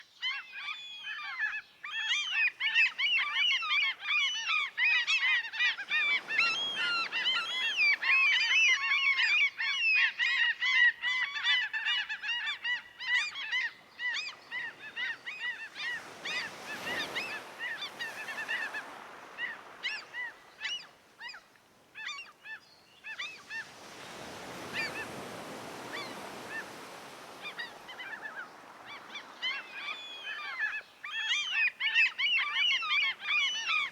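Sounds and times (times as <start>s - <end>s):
sea rushing: 14.5s - 20.4s, 23.2s - 30.7s.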